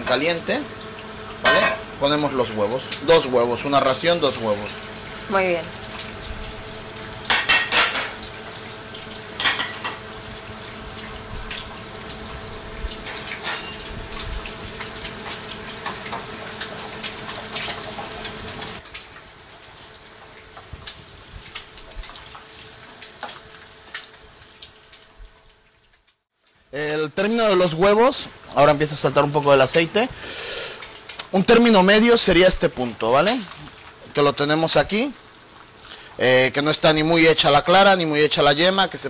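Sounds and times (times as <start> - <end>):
food sizzling in oil: 0.0 - 39.0
pans and utensils clattering: 1.4 - 1.9, 7.3 - 8.3, 9.4 - 10.1, 13.0 - 13.9.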